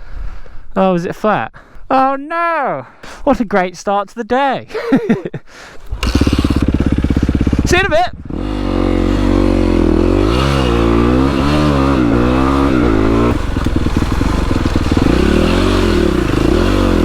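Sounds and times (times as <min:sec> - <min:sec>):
dirt bike engine revving: 0:05.8 - 0:17.0.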